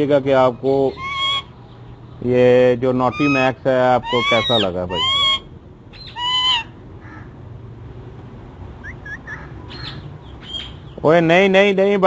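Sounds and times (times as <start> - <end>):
faint high chirps: 8.8 - 10.7
bird call: 8.8 - 11.0.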